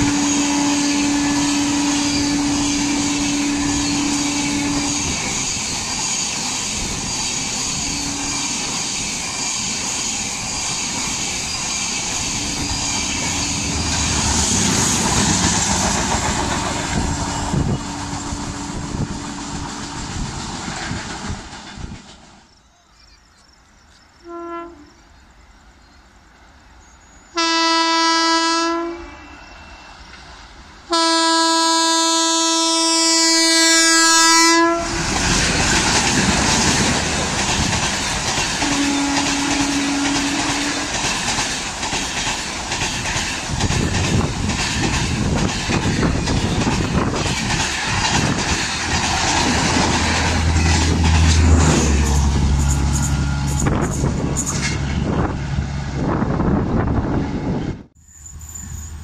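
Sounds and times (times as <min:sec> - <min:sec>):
locomotive horn blasts: 0:00.0 - 0:05.2, 0:07.9 - 0:08.6, 0:24.2 - 0:25.0, 0:27.4 - 0:29.4, 0:30.9 - 0:35.1, 0:38.6 - 0:40.9, 0:51.3 - 0:55.4
train coaches rushing by: 0:00.0 - 0:22.6, 0:29.0 - 0:59.0.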